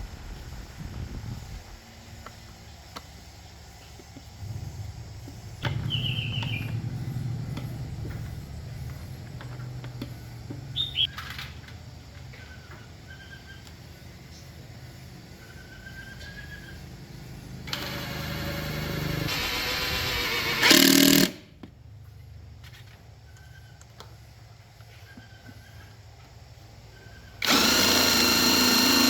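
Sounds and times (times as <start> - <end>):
low steady hum: 0.0 - 18.7
birds chirping descending calls: 4.4 - 11.2.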